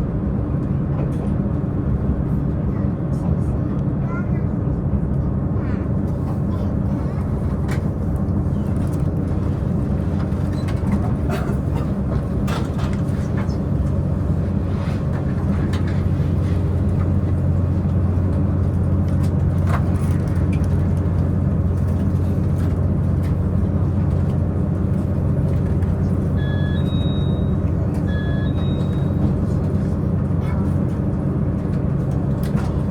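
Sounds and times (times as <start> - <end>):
train diesel engine droning: 5.3 - 32.9
short high beeps: 26.4 - 29.2.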